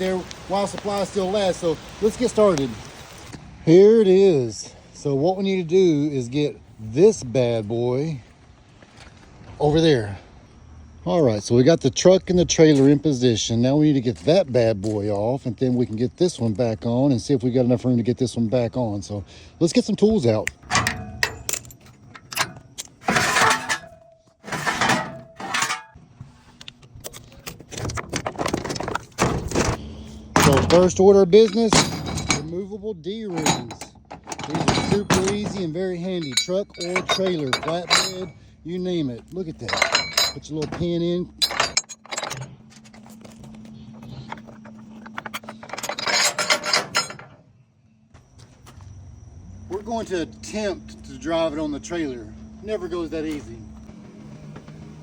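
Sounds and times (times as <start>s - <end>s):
metal tools clanking and rattling: 20.3s - 26.0s, 27.0s - 47.5s
metal d-ring clicking and rattling: 20.4s - 26.0s.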